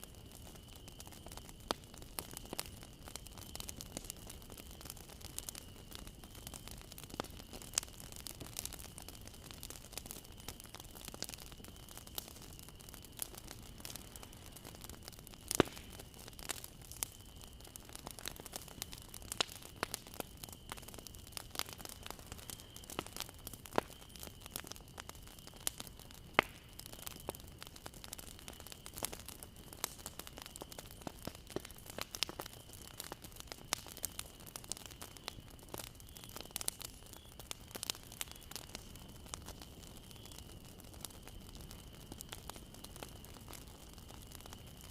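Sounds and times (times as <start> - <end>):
low fire hiss: 0.0 - 44.9
wood crackling and popping: 0.0 - 44.9.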